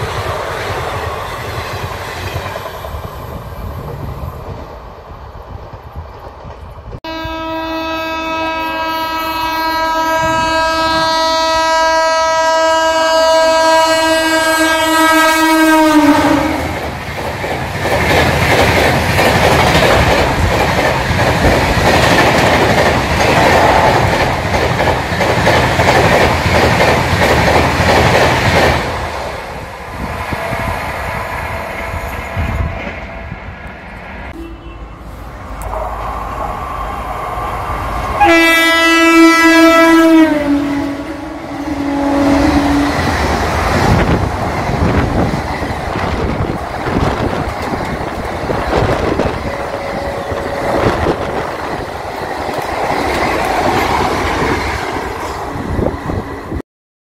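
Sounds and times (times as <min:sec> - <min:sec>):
train wheels rumbling and clattering: 0:00.0 - 0:07.0, 0:16.2 - 0:34.2, 0:42.3 - 0:56.6
locomotive horn: 0:07.0 - 0:16.8, 0:34.3 - 0:36.0, 0:38.2 - 0:43.1, 0:49.2 - 0:51.2.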